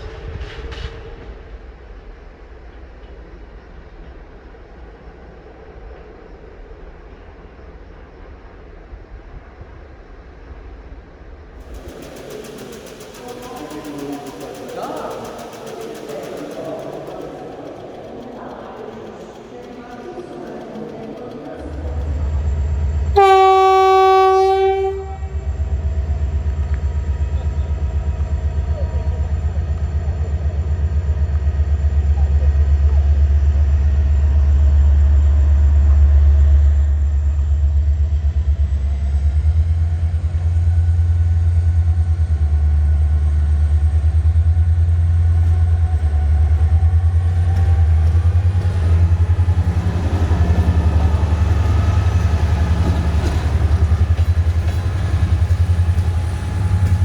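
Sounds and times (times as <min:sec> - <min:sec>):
locomotive horn blast: 0:23.2 - 0:25.4.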